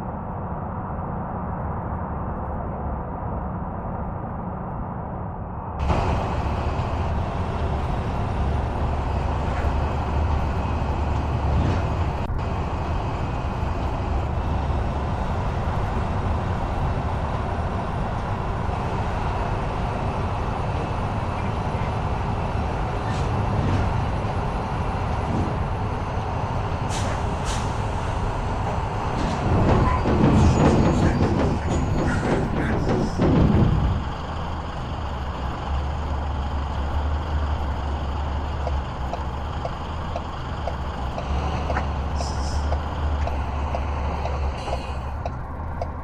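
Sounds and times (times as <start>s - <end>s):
vehicle engine low rumble: 0.0s - 46.0s.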